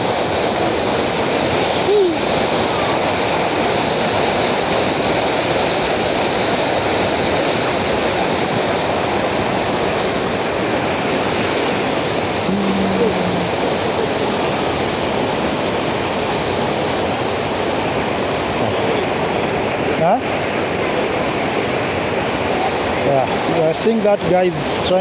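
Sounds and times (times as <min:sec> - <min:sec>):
river water rushing: 0:00.0 - 0:25.0
distant voice calling out: 0:12.5 - 0:14.7.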